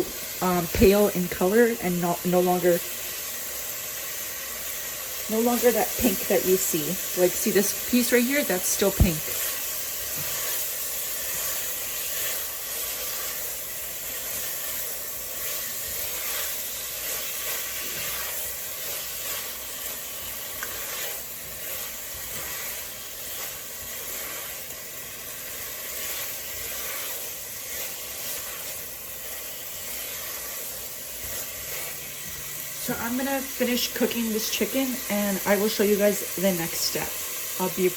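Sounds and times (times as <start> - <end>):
chicken sizzling in oil: 0.0 - 37.9.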